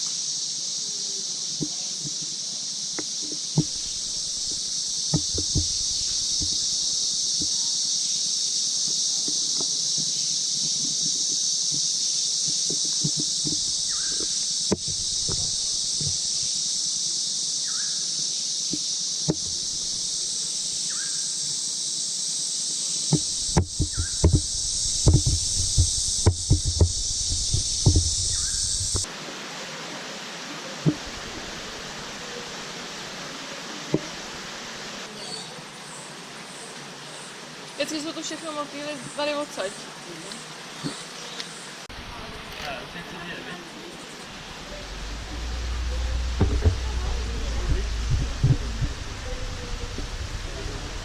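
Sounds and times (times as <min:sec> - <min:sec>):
even hiss: 0:00.0 - 0:51.0
insects droning: 0:00.0 - 0:51.0
close knocks and thumps: 0:03.0 - 0:07.6, 0:12.5 - 0:16.5, 0:18.7 - 0:20.1, 0:23.1 - 0:29.1, 0:30.8 - 0:31.5, 0:33.9 - 0:34.2, 0:44.4 - 0:50.7.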